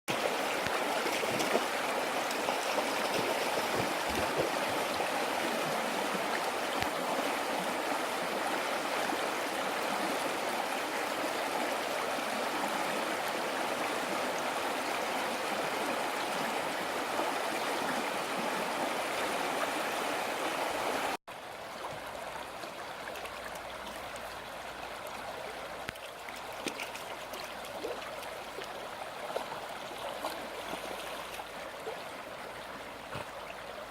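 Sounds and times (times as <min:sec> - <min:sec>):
water rushing: 0:00.1 - 0:21.2.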